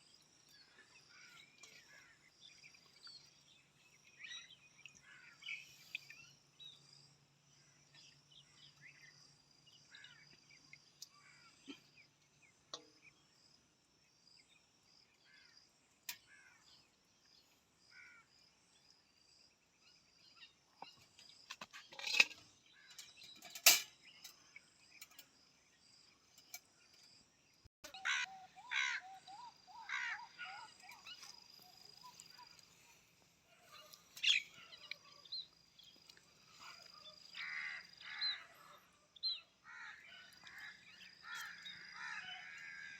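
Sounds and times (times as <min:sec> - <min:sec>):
faint bird chirps: 0:00.0 - 0:13.4, 0:14.2 - 0:42.9
harsh bird calls: 0:27.8 - 0:42.9.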